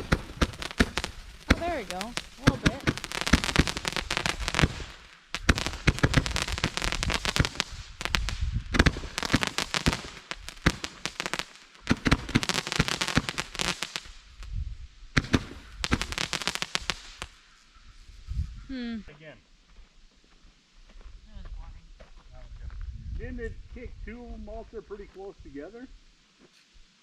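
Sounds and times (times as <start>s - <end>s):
fireworks crackling: 0.0s - 17.5s.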